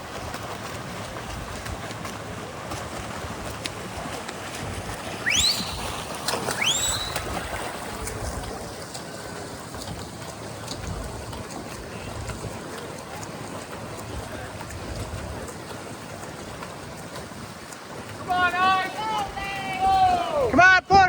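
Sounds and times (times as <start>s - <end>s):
water churned by swimmers: 0.0s - 21.0s
crowd noise: 3.8s - 17.2s, 18.1s - 21.0s
short rising whistles: 5.2s - 7.4s.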